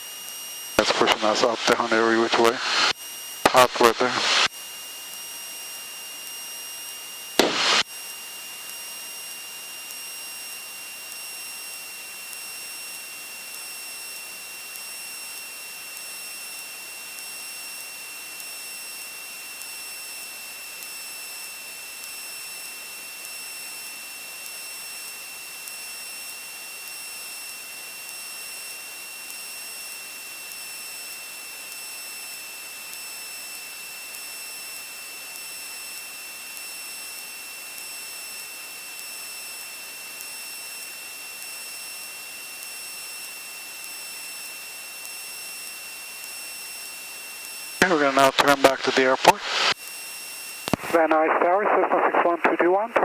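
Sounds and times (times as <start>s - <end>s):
headset hiss with high whine: 0.8s - 4.5s, 7.3s - 53.0s
loud burst of noise: 0.8s - 4.5s, 7.4s - 7.9s, 47.8s - 49.8s.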